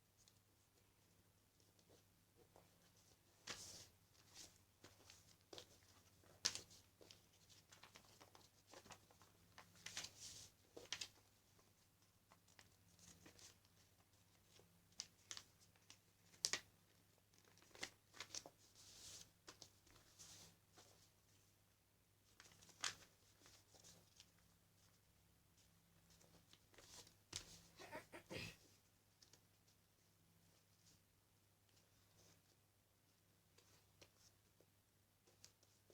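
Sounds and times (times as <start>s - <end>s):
paper being folded and creased: 6.4s - 11.1s, 12.5s - 21.1s, 22.3s - 25.0s.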